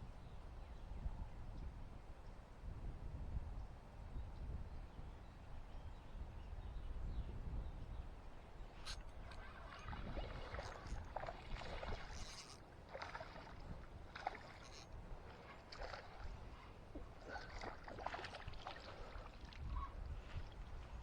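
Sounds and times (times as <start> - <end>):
small water splashes: 8.8 - 21.0
clicks and scrapes: 11.8 - 12.6.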